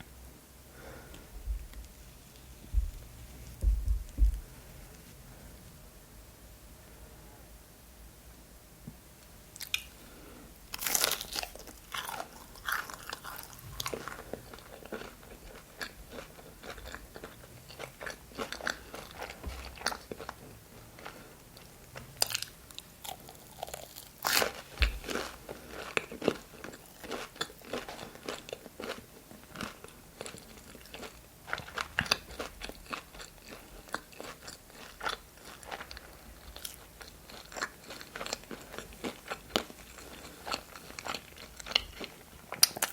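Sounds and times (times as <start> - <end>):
crunchy bites: 10.7 - 20.4, 22.2 - 29.0
wet chewing: 10.8 - 20.4, 21.0 - 42.9.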